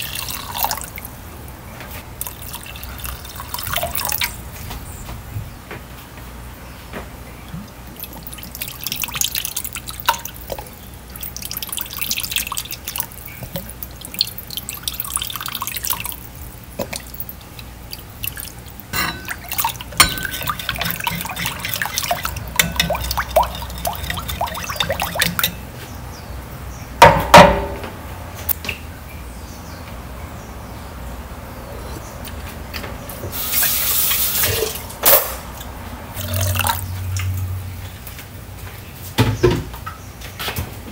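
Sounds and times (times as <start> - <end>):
liquid pouring: 0.0 - 1.2, 2.1 - 4.5, 7.7 - 25.6, 36.2 - 37.5
liquid sloshing and dripping: 0.0 - 1.2, 2.1 - 4.8, 7.4 - 25.7, 33.5 - 38.0
spoon stirring liquid: 8.0 - 25.7.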